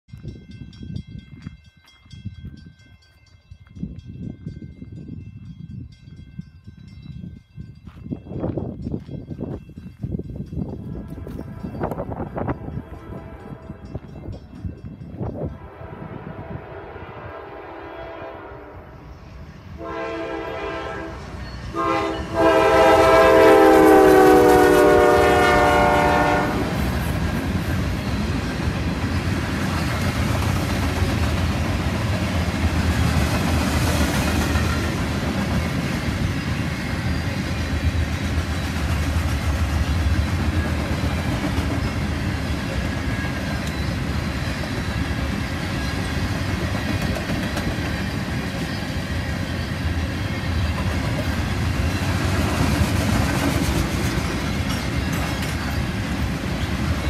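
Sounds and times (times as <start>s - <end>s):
train horn blasts: 10.9s - 14.1s, 15.4s - 27.0s
train wheels clattering on rails: 21.4s - 57.0s.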